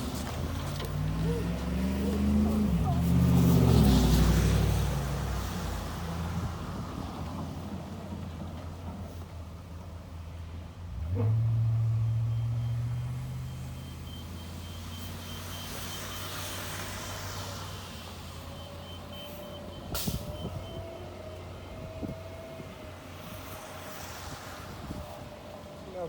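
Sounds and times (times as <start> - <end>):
truck engine rumbling: 0.0 - 26.0
faint high beeping: 12.0 - 16.8.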